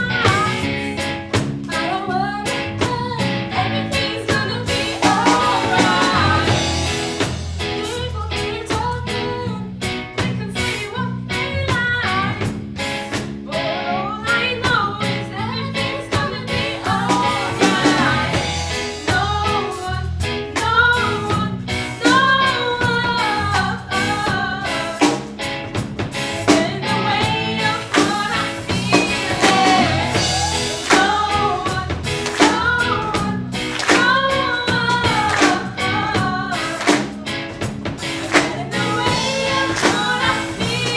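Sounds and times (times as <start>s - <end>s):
live band playing: 0.0s - 40.9s
person singing: 1.7s - 9.3s, 26.3s - 40.9s.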